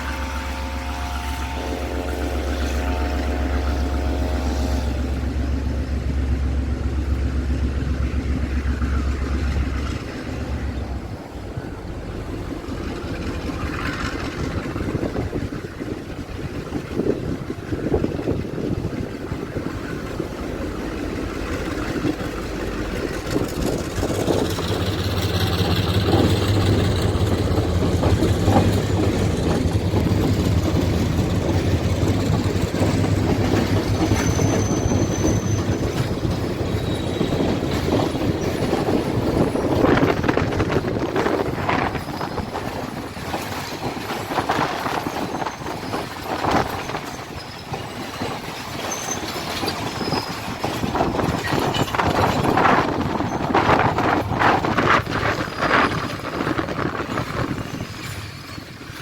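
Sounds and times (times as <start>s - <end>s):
diesel locomotive engine hum: 0.0s - 59.0s
train wheels clicking on rail joints: 0.0s - 59.0s
high squeal: 31.3s - 43.6s, 44.2s - 50.7s.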